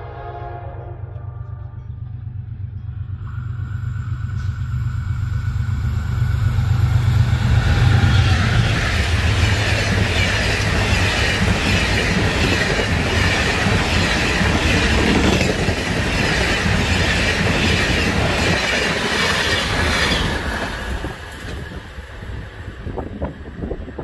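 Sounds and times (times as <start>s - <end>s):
train rolling noise: 0.0s - 24.0s
train wheels clattering over rail joints: 8.5s - 21.8s.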